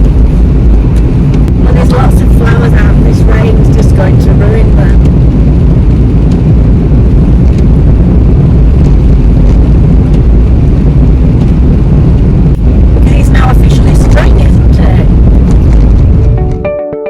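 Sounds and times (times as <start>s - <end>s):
road and engine rumble: 0.0s - 16.6s.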